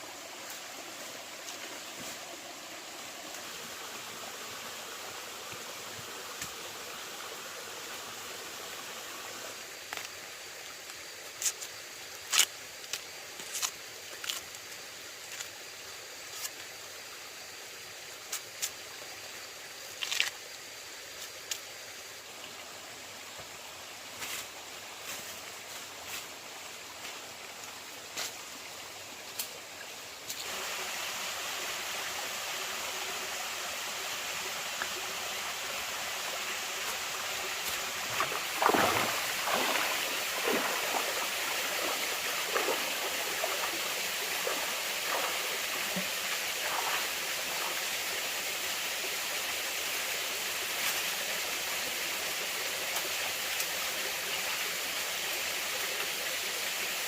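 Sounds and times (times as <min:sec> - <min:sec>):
stream water running: 0:00.0 - 0:57.0
water splashing and gurgling: 0:35.6 - 0:48.2.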